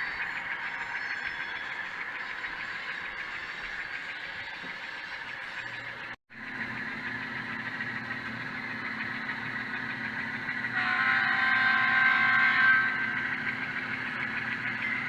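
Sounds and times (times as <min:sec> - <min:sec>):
model diesel engine idling: 0:00.0 - 0:15.0
multi-note air horn: 0:10.7 - 0:13.2.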